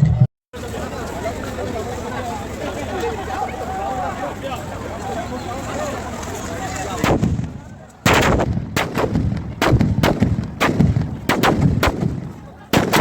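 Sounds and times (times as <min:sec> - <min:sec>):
firecrackers banging: 0:06.6 - 0:13.0.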